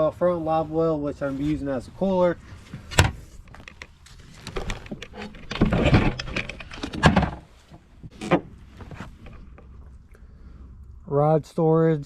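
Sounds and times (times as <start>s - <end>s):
rustling: 0.5s - 10.1s.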